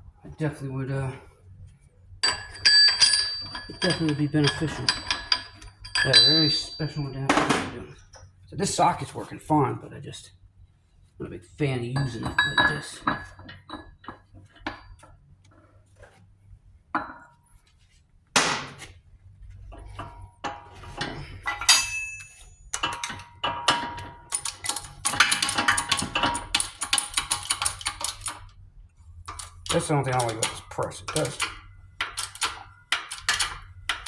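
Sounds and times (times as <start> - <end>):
steel tools clinking: 2.2 - 7.8, 11.9 - 13.8, 19.8 - 28.5, 29.3 - 34.0.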